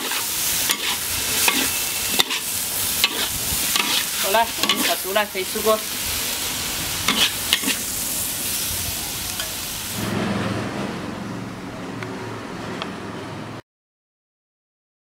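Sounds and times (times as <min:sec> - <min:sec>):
food sizzling in a wok: 0:00.0 - 0:10.6.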